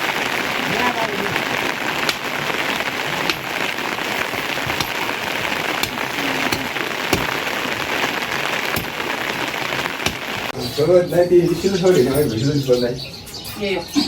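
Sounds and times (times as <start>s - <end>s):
steady rain falling: 0.0s - 10.6s
sharp drips hitting a surface: 0.6s - 10.6s.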